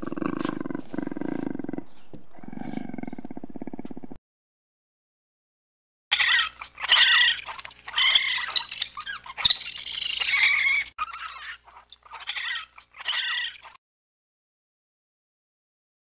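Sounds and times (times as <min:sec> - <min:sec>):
raccoon squealing: 0:06.1 - 0:13.8.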